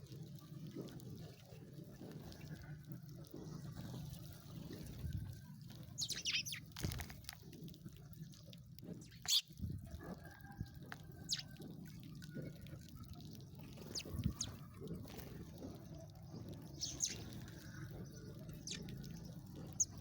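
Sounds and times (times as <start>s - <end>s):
sparrows chirping: 5.8s - 6.8s, 9.0s - 9.5s, 11.2s - 11.5s, 13.5s - 20.0s.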